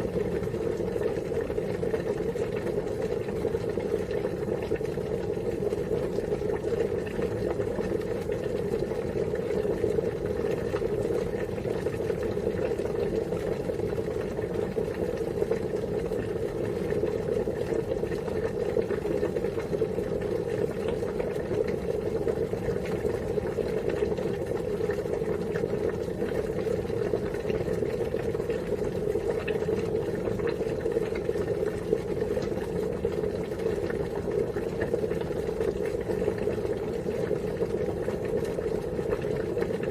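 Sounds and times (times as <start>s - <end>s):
water boiling: 0.0s - 39.9s.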